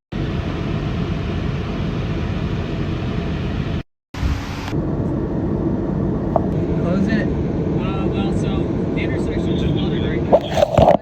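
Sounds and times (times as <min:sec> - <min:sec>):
vehicle interior rumble and hiss: 0:00.2 - 0:11.0.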